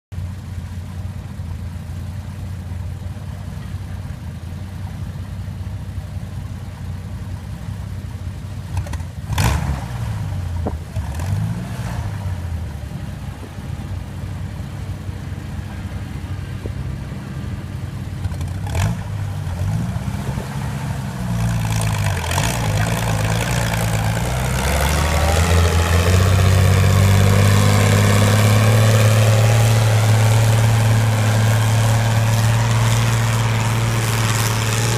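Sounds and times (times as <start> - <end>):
tractor engine revving: 8.7 - 34.9
sharp engine crack: 18.2 - 34.9.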